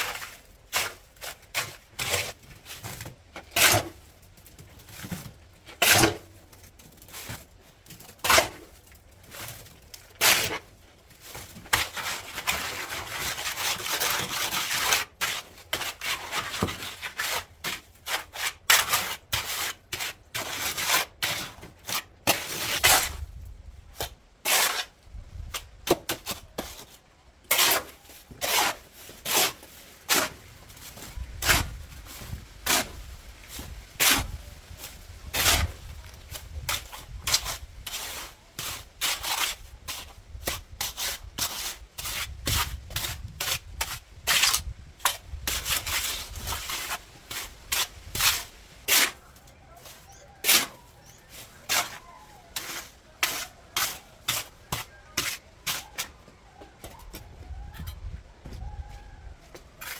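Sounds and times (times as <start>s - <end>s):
scraping and rubbing strokes: 26.3s - 56.2s, 59.5s - 59.9s.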